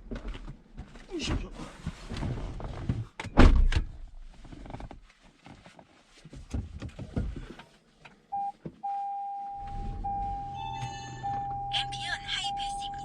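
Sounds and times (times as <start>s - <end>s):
electronic beep tone: 8.4s - 13.0s.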